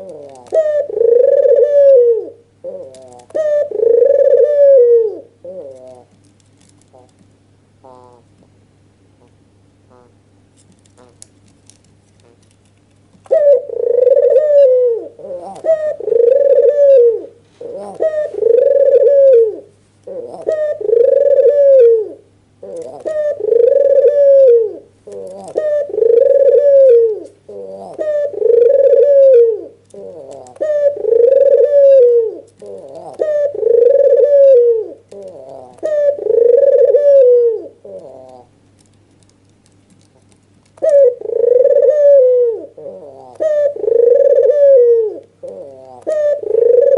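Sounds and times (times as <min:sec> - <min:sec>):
dove cooing: 0:00.0 - 0:06.2, 0:07.8 - 0:08.3, 0:13.2 - 0:38.6, 0:40.1 - 0:46.9
faint low hum: 0:00.0 - 0:46.9.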